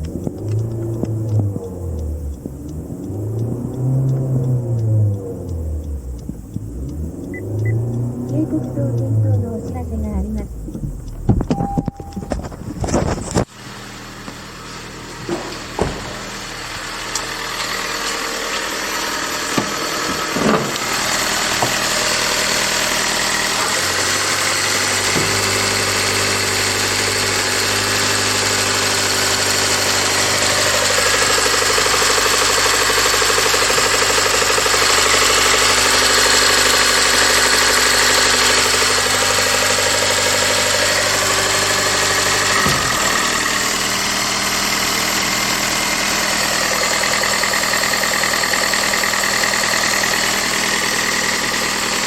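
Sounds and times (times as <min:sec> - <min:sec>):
starter clicks: 0:00.0 - 0:13.5
car engine starting and idling: 0:00.0 - 0:52.0.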